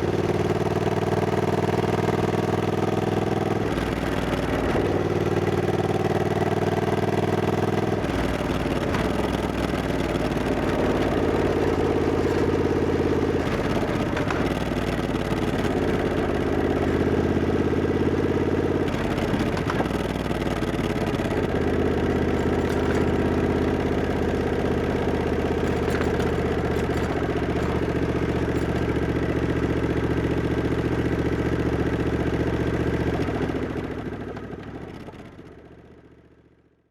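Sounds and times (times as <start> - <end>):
motorcycle engine running: 0.0 - 36.4.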